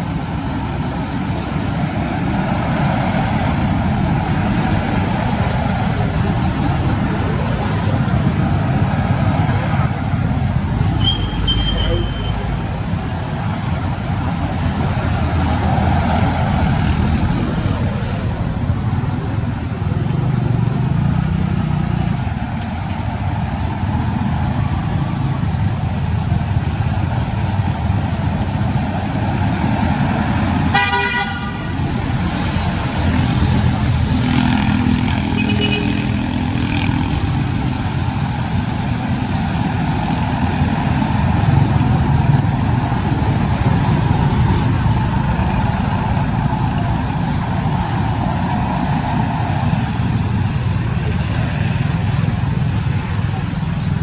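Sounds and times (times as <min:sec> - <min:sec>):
road traffic rumble: 0:00.0 - 0:54.0
vehicle horn tooting: 0:11.0 - 0:12.5, 0:30.7 - 0:31.7.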